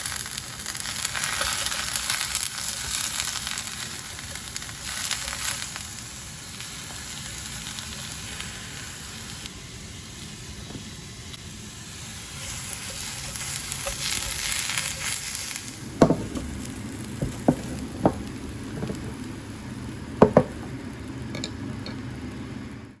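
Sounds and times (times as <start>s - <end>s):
food sizzling in hot oil: 0.0s - 23.0s
sharp clicks and knocks: 16.0s - 16.6s, 17.2s - 19.2s, 20.2s - 20.8s.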